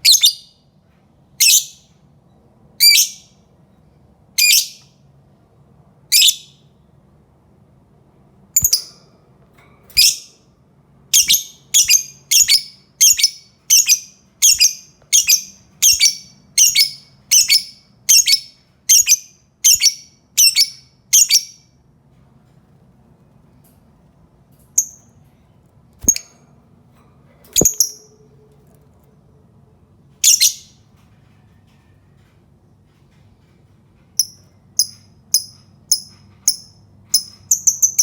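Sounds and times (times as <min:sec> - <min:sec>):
lovebird shrill calls: 0:11.1 - 0:21.6, 0:30.2 - 0:30.7.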